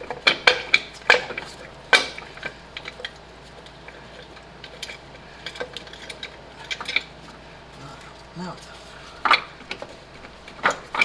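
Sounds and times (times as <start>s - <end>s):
metallic clinks of tools: 7.7s - 9.3s.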